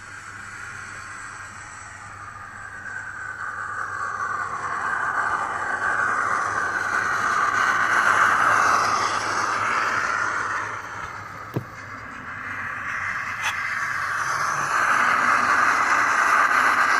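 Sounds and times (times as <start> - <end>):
steam hiss from small speaker: 0.0 - 16.9.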